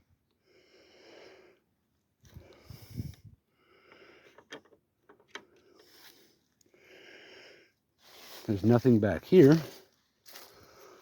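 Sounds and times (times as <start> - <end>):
breathing and sniffing: 0.4 - 1.7, 5.6 - 8.4.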